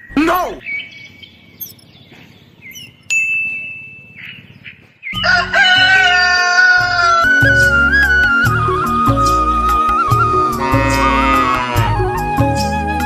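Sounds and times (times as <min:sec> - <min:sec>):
bright chime: 0:03.1 - 0:04.4
rooster crowing: 0:05.2 - 0:07.7
upbeat instrumental music: 0:05.2 - 0:13.0.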